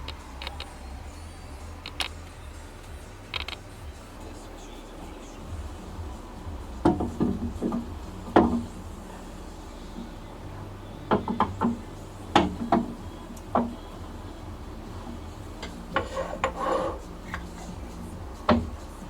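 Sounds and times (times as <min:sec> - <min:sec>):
low steady hum: 0:00.0 - 0:19.0
tools knocking and clanking: 0:06.8 - 0:08.8, 0:11.1 - 0:13.8, 0:15.0 - 0:17.5.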